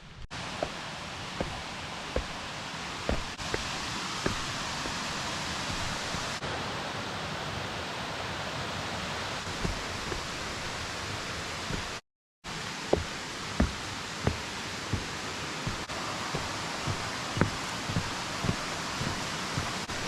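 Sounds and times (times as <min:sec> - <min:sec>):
waterfall rushing: 0:00.4 - 0:07.3, 0:09.4 - 0:20.0
short thumps: 0:01.4 - 0:01.6, 0:02.2 - 0:02.4, 0:03.1 - 0:06.4, 0:09.5 - 0:12.0, 0:12.9 - 0:20.0.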